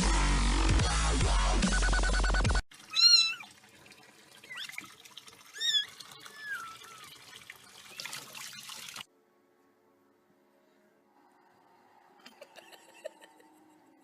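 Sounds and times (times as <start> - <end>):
cat meowing: 2.9 - 3.5.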